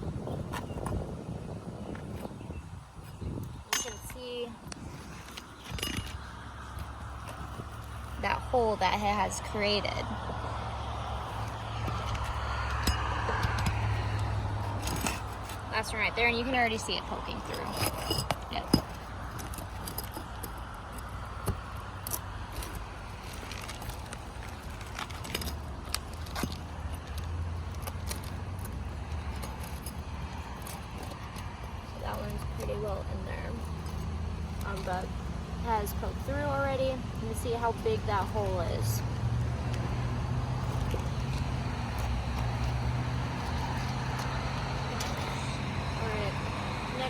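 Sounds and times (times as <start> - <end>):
low engine hum: 0.0 - 47.0
metal tool clicking and scraping: 17.5 - 22.8.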